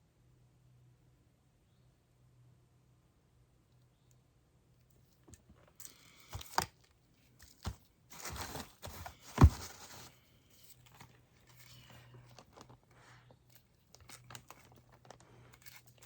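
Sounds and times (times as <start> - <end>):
material crinkling and rustling: 5.3 - 16.0.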